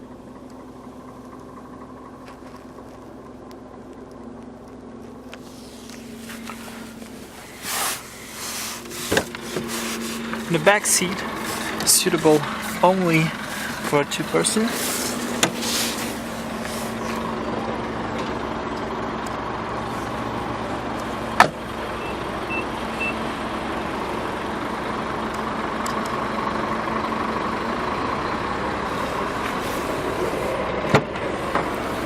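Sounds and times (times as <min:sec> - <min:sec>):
vehicle drone: 0:00.0 - 0:32.0.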